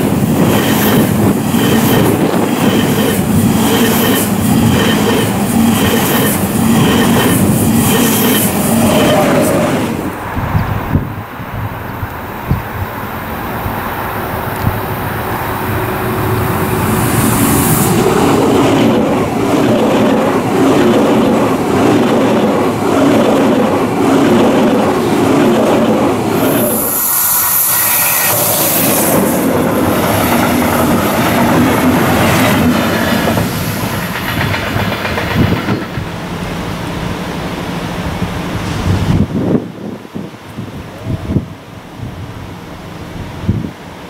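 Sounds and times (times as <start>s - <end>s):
train wheels rolling on rails: 0.0s - 41.4s.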